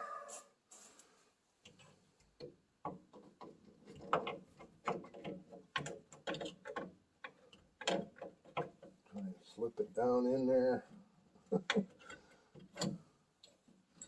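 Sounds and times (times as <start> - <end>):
metallic clicks and clunks: 1.7 - 9.2, 11.6 - 14.0.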